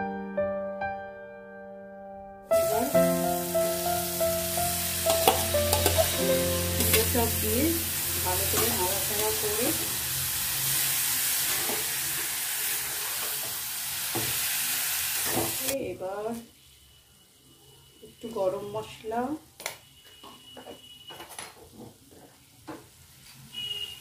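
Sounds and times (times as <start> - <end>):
vegetables sizzling in oil: 2.6 - 17.0
metal spatula scraping pan: 5.1 - 7.3.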